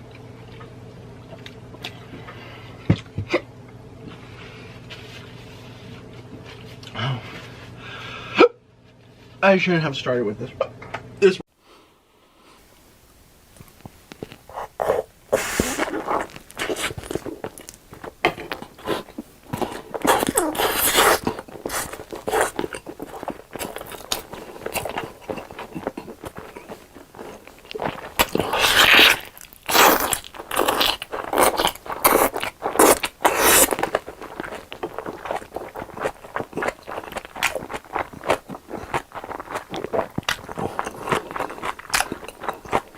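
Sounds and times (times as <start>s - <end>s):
crunchy bites and chewing: 13.6s - 42.9s.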